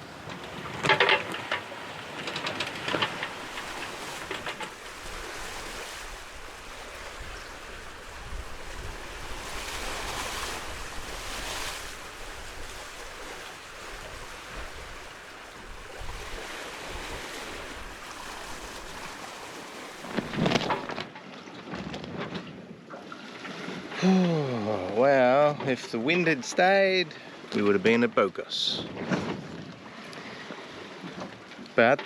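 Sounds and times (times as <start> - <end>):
sea water washing past hulls: 0.0 - 21.4
wind rumbling on microphone: 2.8 - 22.9, 28.8 - 29.9.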